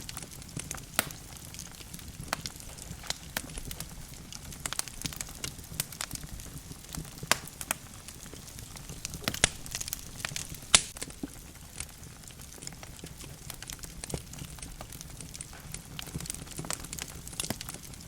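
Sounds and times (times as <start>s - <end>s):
logs crackling in fireplace: 0.0s - 18.0s.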